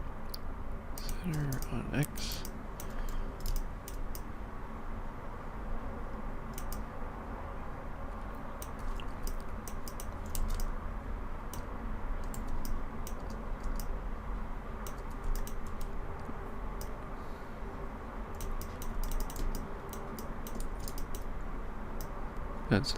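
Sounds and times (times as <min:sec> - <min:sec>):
computer keyboard keys clicking: 0:01.0 - 0:01.8, 0:02.4 - 0:04.3, 0:06.5 - 0:06.9, 0:08.6 - 0:10.7, 0:11.5 - 0:13.9, 0:14.8 - 0:16.0, 0:18.3 - 0:21.3.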